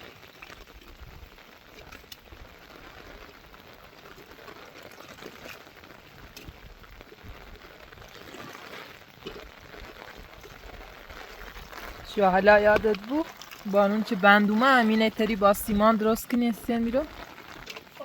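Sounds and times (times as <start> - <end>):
splashing running water: 0.0 - 18.0.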